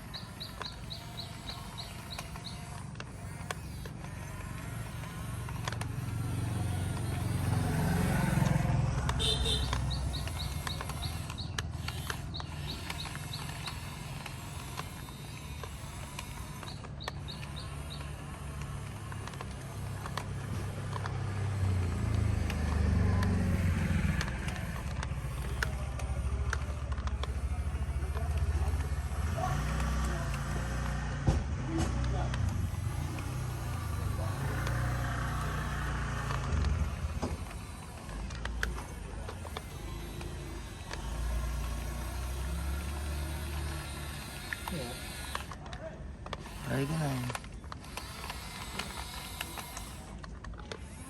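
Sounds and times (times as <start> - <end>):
motor vehicles passing: 0.0 - 51.0.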